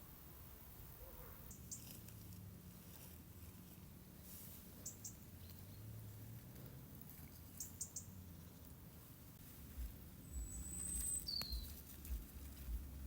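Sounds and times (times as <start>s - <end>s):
faint low hum: 8.2s - 13.0s.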